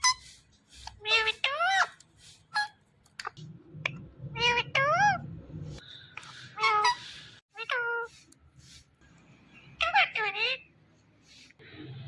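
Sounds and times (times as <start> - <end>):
parrot calling: 0.0 - 2.8, 6.2 - 8.1.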